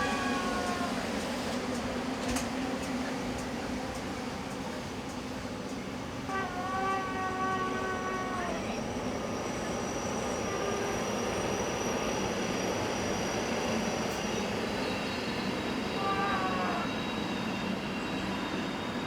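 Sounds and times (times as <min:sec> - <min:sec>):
train horn chord: 0:00.0 - 0:01.0, 0:06.3 - 0:08.7.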